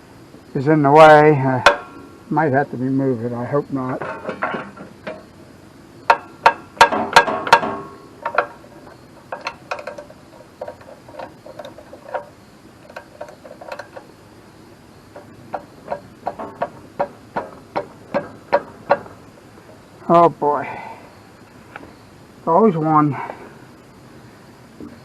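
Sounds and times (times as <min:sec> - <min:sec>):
loud ringing metal clanks: 0:03.9 - 0:14.0, 0:15.1 - 0:19.9
metal wrench clinking on bolts: 0:06.1 - 0:14.0.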